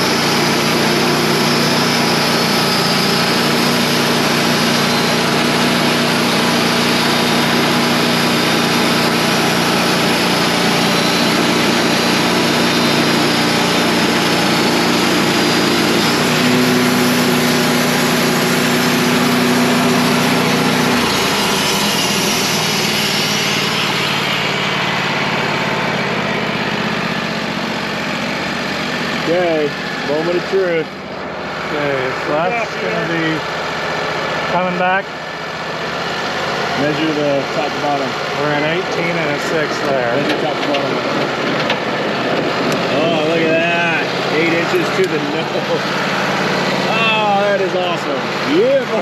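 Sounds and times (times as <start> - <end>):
saw blade cutting hiss: 0.0 - 24.5
band sawmill engine under load: 0.0 - 49.0.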